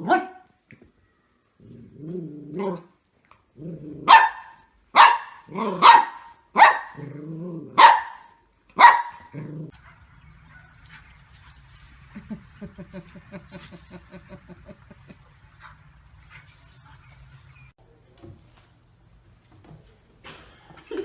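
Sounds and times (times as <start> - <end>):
dog barking: 0.0 - 0.4, 4.0 - 7.0, 7.8 - 9.3
dog growling: 3.6 - 4.1, 7.0 - 7.8, 9.3 - 9.8.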